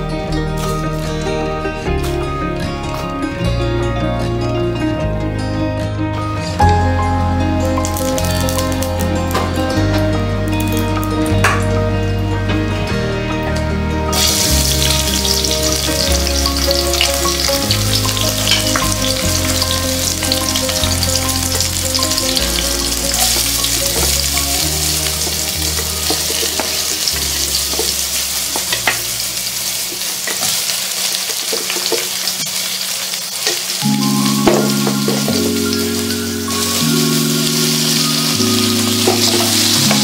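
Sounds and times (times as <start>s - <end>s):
onion and garlic sizzling in oil: 7.7s - 11.6s, 14.1s - 40.0s.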